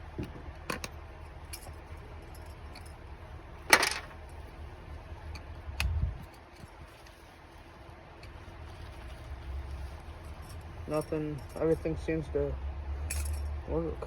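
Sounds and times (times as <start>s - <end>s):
metal parts clicking and clinking: 0.7s - 3.1s, 3.7s - 4.5s, 13.0s - 13.6s
metal clatter: 3.7s - 4.3s.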